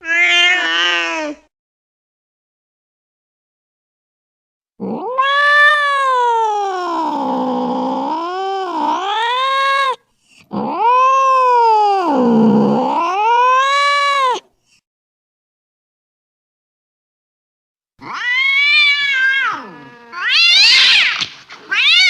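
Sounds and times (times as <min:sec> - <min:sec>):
angry cat yowling: 0:00.0 - 0:01.4, 0:04.8 - 0:14.5, 0:18.0 - 0:22.0.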